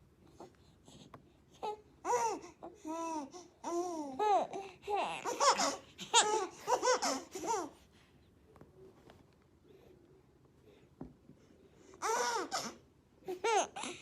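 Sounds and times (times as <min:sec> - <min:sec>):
baby giggling: 0:05.1 - 0:07.7.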